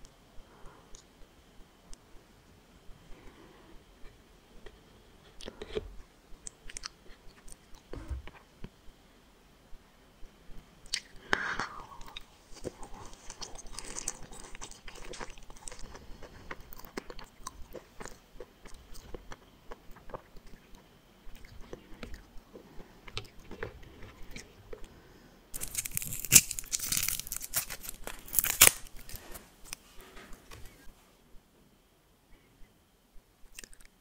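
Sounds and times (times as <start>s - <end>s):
chewing gummy candy: 11.8s - 24.9s, 25.6s - 29.2s
plastic wrapper crinkling: 25.6s - 30.6s.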